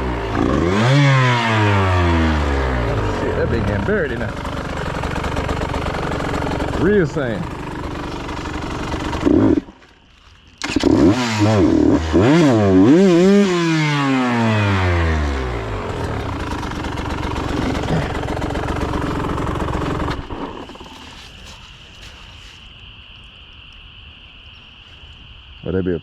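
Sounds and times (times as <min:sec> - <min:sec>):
two-stroke dirt bike engine revving: 0:00.0 - 0:09.8, 0:10.6 - 0:21.0.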